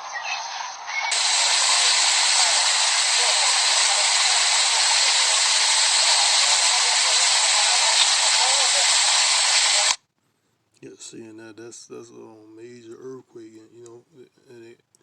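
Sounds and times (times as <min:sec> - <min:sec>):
loud steady hiss: 0:00.8 - 0:10.0.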